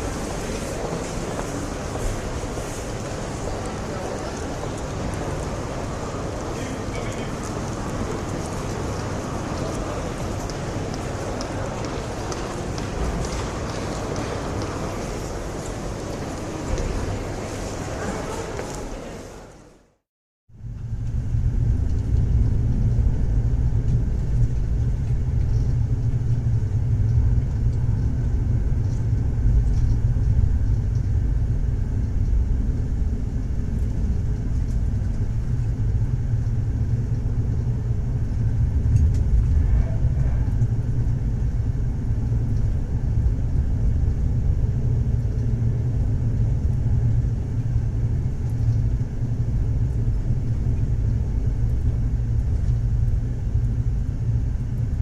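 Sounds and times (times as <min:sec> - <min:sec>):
low rumble: 0:20.5 - 0:55.0.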